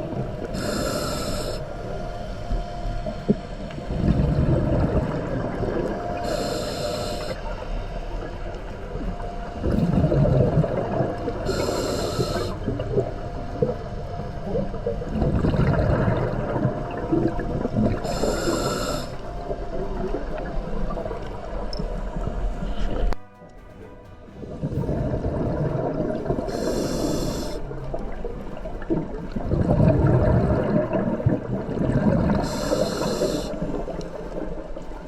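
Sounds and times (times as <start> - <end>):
regulator hissing inhale: 0.2 - 3.6, 5.0 - 8.2, 11.3 - 12.8, 17.8 - 19.8, 26.4 - 27.8, 32.3 - 34.2
rumble of exhaled bubbles: 1.6 - 23.2, 24.5 - 35.0.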